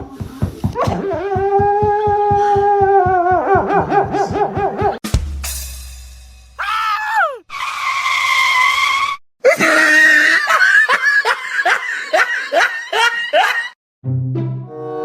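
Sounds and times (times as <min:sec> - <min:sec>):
music: 0:03.5 - 0:06.6, 0:14.0 - 0:15.0
hearty laughter: 0:09.4 - 0:13.8.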